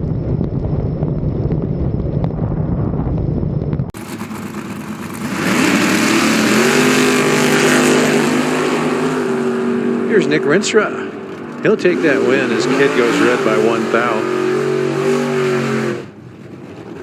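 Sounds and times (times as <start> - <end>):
race car engine revving: 4.0 - 17.0.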